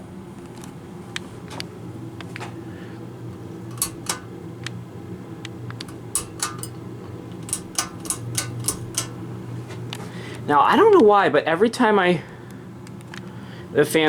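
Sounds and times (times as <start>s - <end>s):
ceiling fan electrical hum: 0.0s - 14.0s
sharp clicks: 3.7s - 4.8s, 5.7s - 9.2s.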